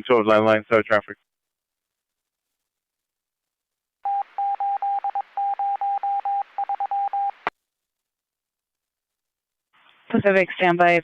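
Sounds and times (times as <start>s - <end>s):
radio beeps: 4.1s - 7.5s.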